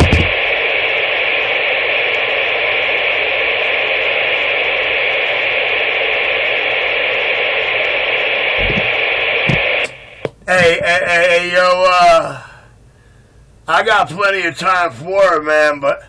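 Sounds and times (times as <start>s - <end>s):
radio static hiss: 0.0s - 12.5s.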